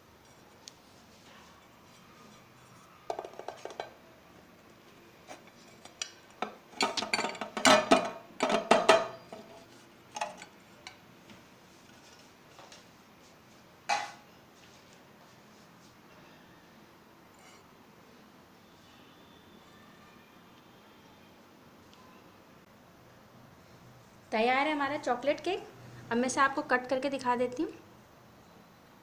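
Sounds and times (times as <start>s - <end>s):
metal cake tin clattering on plate: 6.8s - 9.2s, 13.9s - 14.2s.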